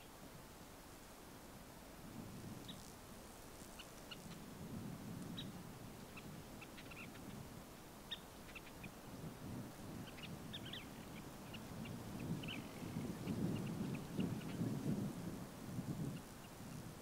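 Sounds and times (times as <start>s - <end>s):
faint bird chirps: 5.3s - 7.4s, 8.0s - 9.0s, 10.0s - 14.7s.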